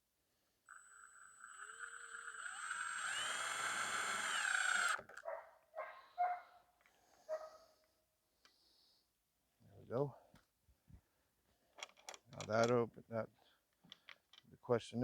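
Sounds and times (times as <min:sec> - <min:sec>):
cordless drill whine: 0:00.7 - 0:05.1
dog barking: 0:05.2 - 0:06.6, 0:07.3 - 0:07.7.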